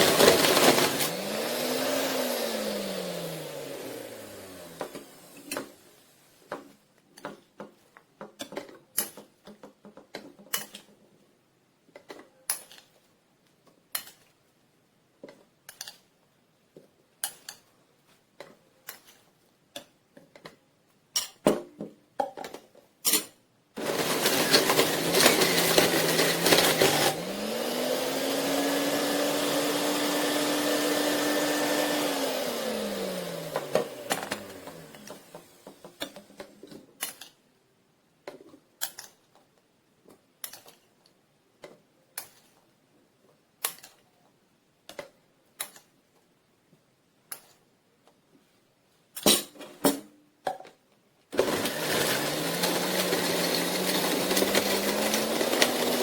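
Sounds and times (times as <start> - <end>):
juicer motor grinding and whining: 0.0 - 5.7, 23.8 - 35.9, 51.4 - 56.0
plastic parts clicking: 36.0 - 37.4, 38.2 - 42.7, 43.6 - 46.3.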